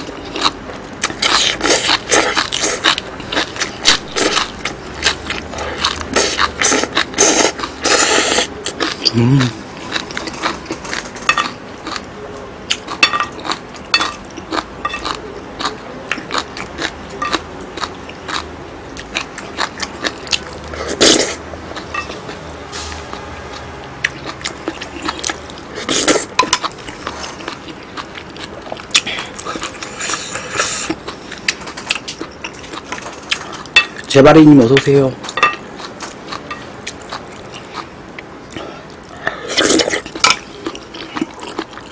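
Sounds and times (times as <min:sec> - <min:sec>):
wet chewing: 0:00.0 - 0:12.1, 0:12.7 - 0:22.4, 0:23.1 - 0:41.9.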